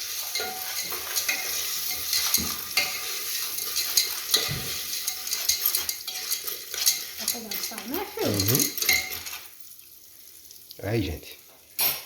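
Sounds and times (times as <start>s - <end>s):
stirring scrapes and clicks: 0.0s - 9.5s
popcorn sizzling in oil: 0.0s - 12.0s.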